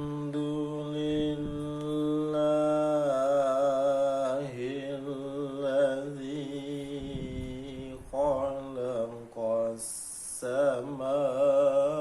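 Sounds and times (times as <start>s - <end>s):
person reciting melodically: 0.0s - 12.0s.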